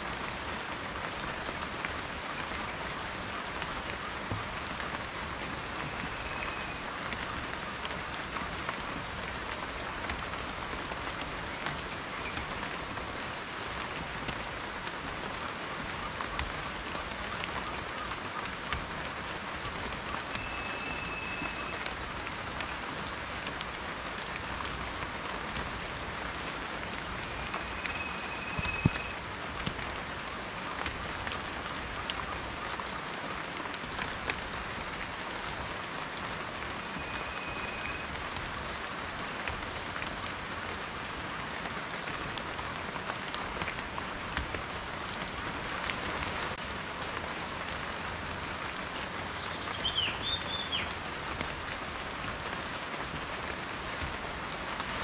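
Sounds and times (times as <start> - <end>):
rain falling: 0.0 - 55.0
raindrops ticking: 0.1 - 55.0.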